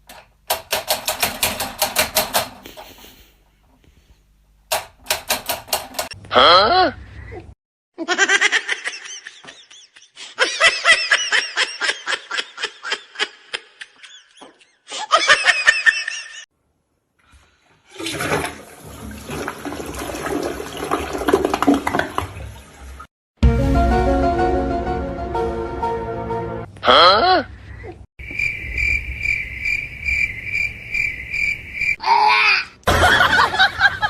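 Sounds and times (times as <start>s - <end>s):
person laughing: 6.4s - 16.4s, 26.8s - 28.0s.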